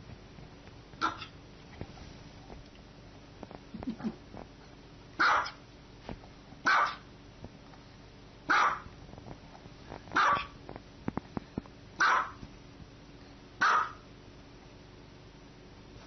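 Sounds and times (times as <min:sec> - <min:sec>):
small dog barking: 0:01.0 - 0:01.4, 0:05.2 - 0:05.6, 0:06.6 - 0:07.1, 0:08.5 - 0:08.9, 0:10.2 - 0:10.6, 0:12.0 - 0:12.4, 0:13.6 - 0:14.1.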